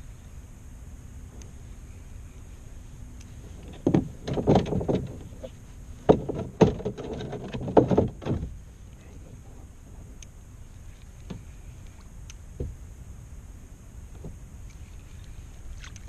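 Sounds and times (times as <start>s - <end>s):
gear knocking and rattling: 3.7s - 8.5s.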